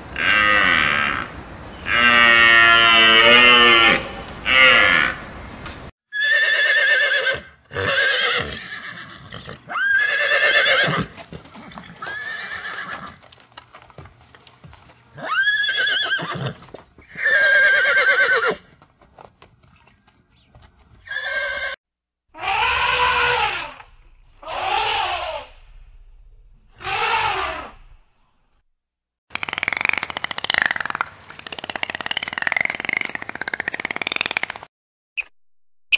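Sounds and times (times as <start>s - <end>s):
horses neighing: 6.2s - 13.2s, 15.2s - 18.6s, 21.0s - 21.8s, 22.4s - 26.0s, 26.7s - 28.0s
elephant trumpeting: 22.4s - 28.0s.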